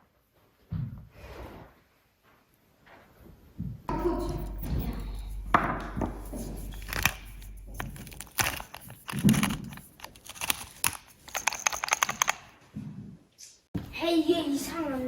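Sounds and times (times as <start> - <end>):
low hum: 3.9 - 10.2
sharp clicks and knocks: 3.9 - 12.5.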